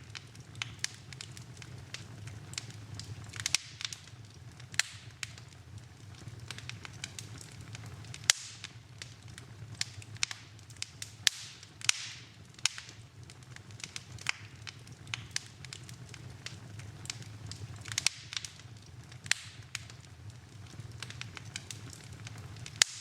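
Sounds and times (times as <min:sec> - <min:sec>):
low steady rumble: 0:00.0 - 0:23.0
wood fire crackling: 0:00.0 - 0:23.0.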